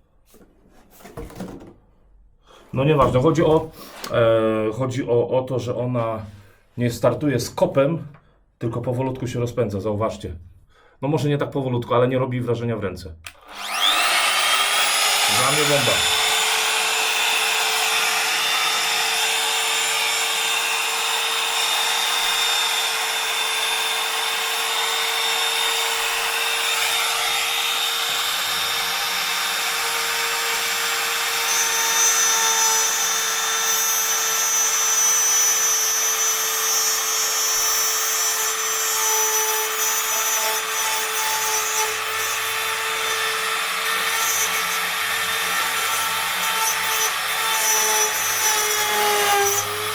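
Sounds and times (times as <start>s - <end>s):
router whining cutting wood: 13.3s - 49.9s.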